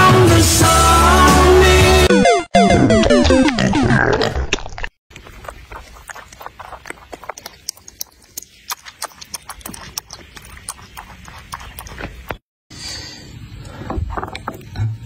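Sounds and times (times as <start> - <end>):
dog lapping water: 5.1 - 12.4.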